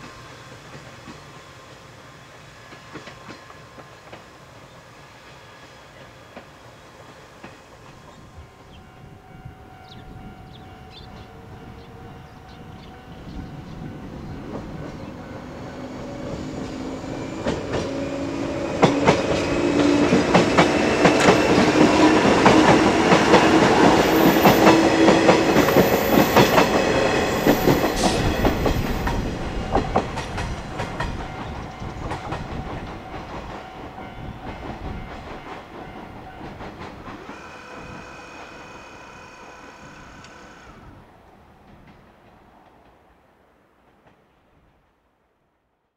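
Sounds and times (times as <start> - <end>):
electric train passing: 0.0 - 44.5
level-crossing alarm ringing: 8.4 - 18.9, 31.3 - 40.1
wheels clacking over rail joints: 13.8 - 40.8.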